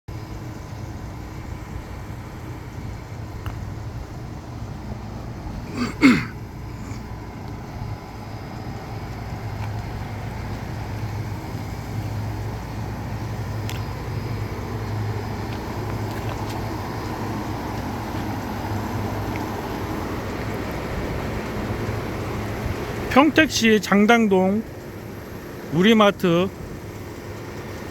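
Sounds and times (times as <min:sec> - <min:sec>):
compressor humming: 0:00.1 - 0:27.9.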